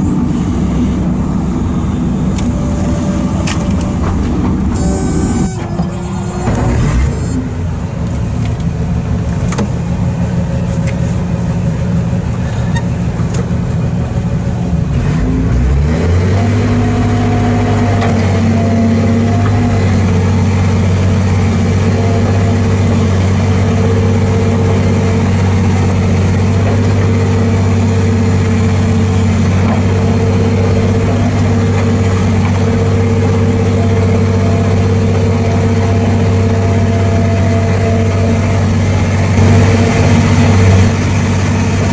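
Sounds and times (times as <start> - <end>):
excavator diesel engine revving: 0.0 - 41.9.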